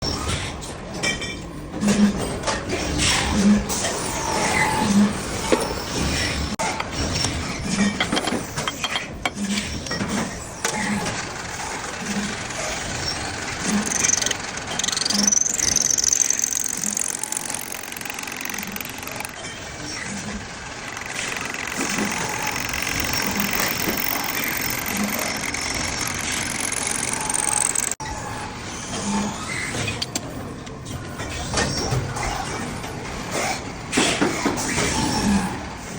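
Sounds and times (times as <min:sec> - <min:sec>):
metal lathe machining: 0:10.8 - 0:28.0.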